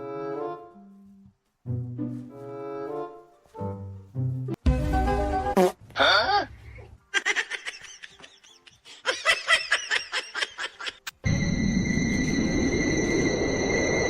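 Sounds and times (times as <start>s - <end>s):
person laughing: 7.1s - 11.1s
high steady whine: 11.2s - 14.0s.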